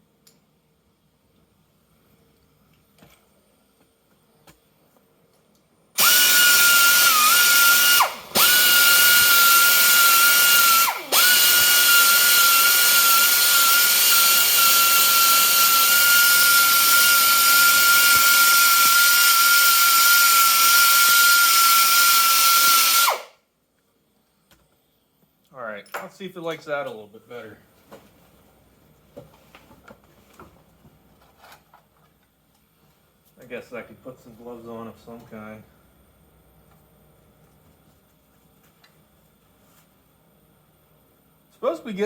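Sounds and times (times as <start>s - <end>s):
electric grinder whining against metal: 6.0s - 23.3s.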